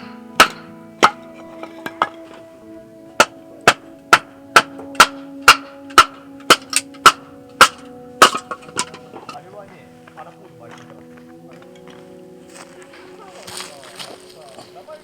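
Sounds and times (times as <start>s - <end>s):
sharp hard strikes: 0.0s - 9.5s
acoustic guitar music: 0.0s - 15.0s.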